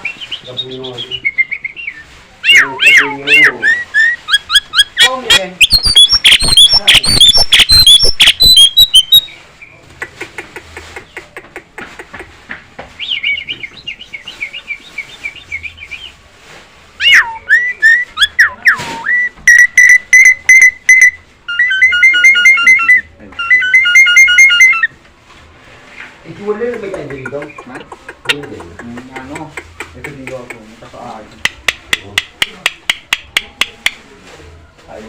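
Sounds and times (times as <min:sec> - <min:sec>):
myna chirping and whistling: 0:00.0 - 0:09.8, 0:13.0 - 0:16.2, 0:17.0 - 0:24.9
bird beeping notes: 0:04.6 - 0:09.3, 0:18.2 - 0:24.9.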